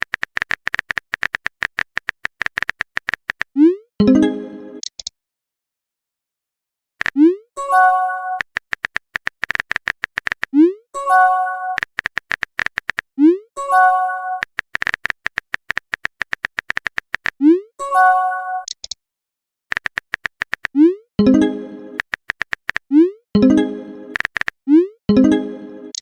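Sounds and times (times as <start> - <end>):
rapid typing clicks: 0.0 - 3.5, 8.4 - 10.5, 11.8 - 13.1, 14.4 - 17.4, 19.7 - 20.7, 21.9 - 22.9, 24.1 - 24.6.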